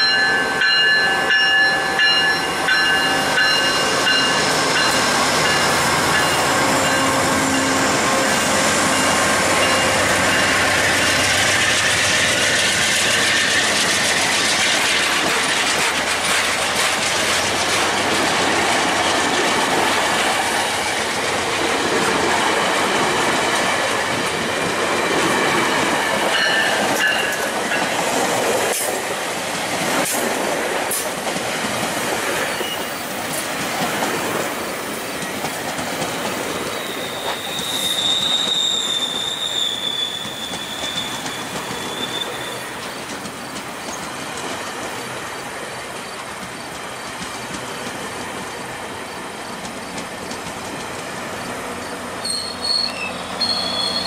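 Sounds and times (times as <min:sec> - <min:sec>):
wheel-on-rail noise: 0:00.0 - 0:54.0
locomotive engine and blower: 0:01.8 - 0:21.6
wheels clicking over rail joints: 0:08.8 - 0:20.5, 0:21.2 - 0:45.2, 0:45.8 - 0:52.4
wheel squeal: 0:32.5 - 0:33.1, 0:36.6 - 0:43.0, 0:52.2 - 0:54.0.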